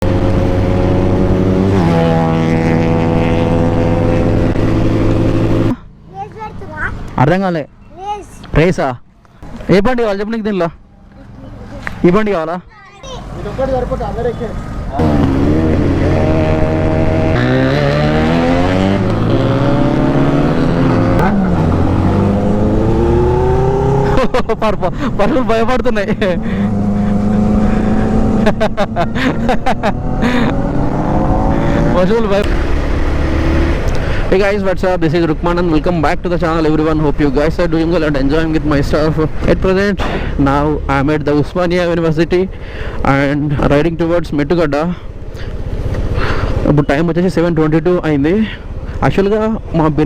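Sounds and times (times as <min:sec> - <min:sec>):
motorcycle engine revving: 0:00.0 - 0:05.9, 0:13.3 - 0:34.4.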